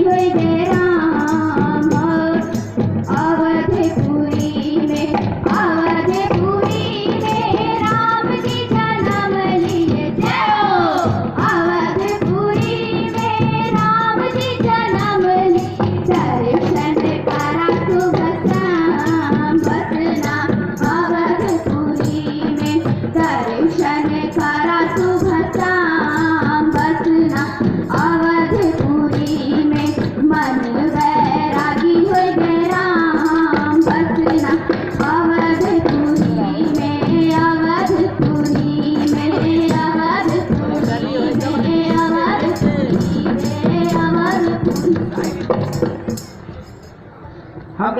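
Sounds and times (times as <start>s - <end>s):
light percussion beat: 0.0s - 47.9s
children singing: 5.5s - 22.6s.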